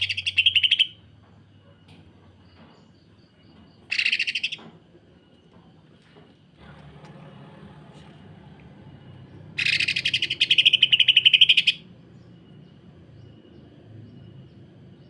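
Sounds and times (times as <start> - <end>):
bird rapid rattling trill: 0.0 - 1.0, 3.9 - 4.6, 9.5 - 11.9.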